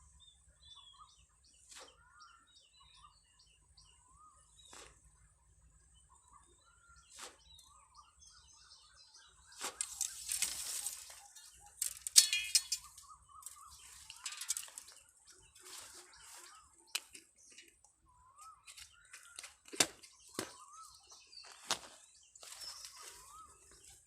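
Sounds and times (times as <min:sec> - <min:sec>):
rustling and crinkling: 0:09.5 - 0:17.8, 0:21.2 - 0:24.0.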